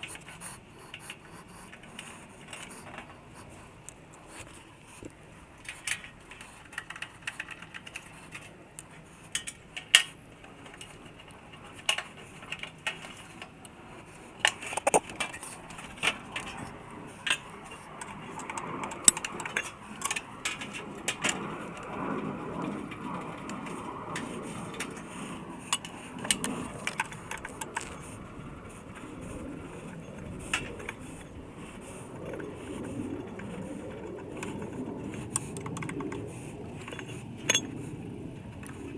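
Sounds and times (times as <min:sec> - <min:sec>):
metal tools clinking: 0:36.8 - 0:37.8.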